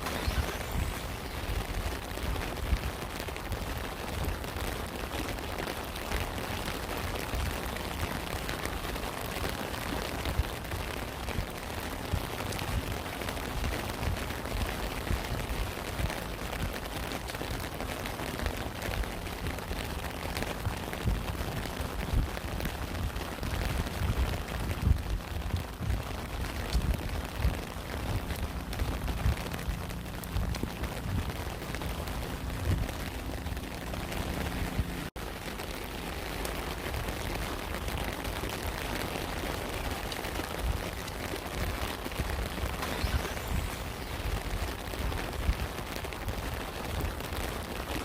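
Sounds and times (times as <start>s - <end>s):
steady rain falling: 0.0s - 48.0s
low rumble: 9.3s - 38.6s.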